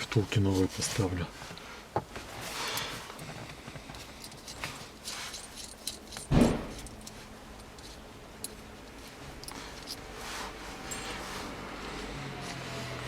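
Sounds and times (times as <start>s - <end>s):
small metal parts clinking: 4.0s - 8.7s, 9.4s - 10.0s
heavy thud: 6.3s - 6.8s.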